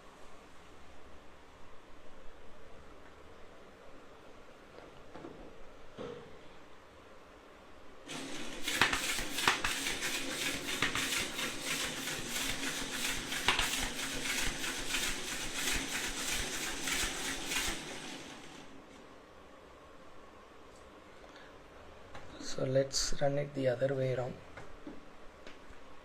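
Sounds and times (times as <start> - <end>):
air hissing: 8.1 - 18.4
rapid plastic clatter: 8.1 - 18.8.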